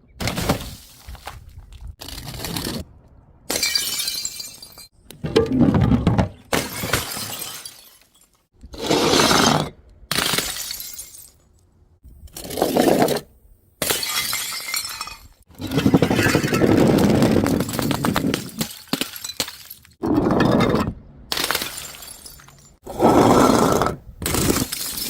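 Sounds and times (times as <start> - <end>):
glass bottles shattering: 3.5 - 4.9, 6.5 - 8.4, 10.2 - 11.4, 13.8 - 16.6, 17.6 - 20.0, 21.3 - 22.8, 24.3 - 25.0.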